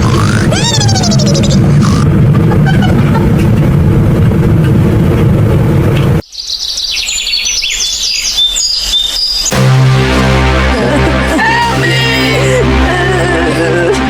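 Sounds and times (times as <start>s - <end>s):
birds chirping: 0.0s - 2.1s
engine rumble: 0.0s - 6.2s.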